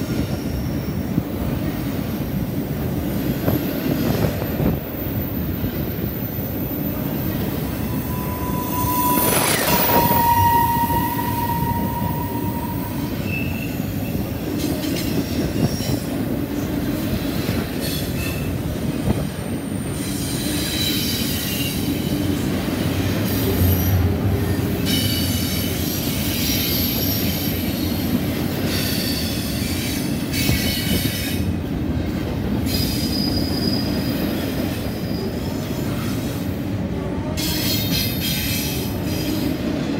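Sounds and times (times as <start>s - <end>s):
steel wheels rumbling on rail: 0.0s - 39.9s
high wheel squeals: 6.2s - 14.3s.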